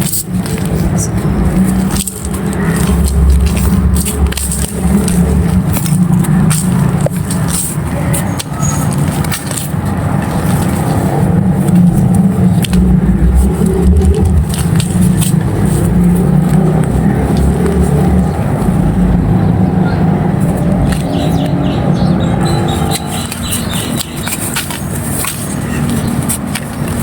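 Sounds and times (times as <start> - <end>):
crisp crackles: 0.0 - 19.0
deep rumble: 0.0 - 27.0
dry clay crumbling and crunching: 0.1 - 19.0.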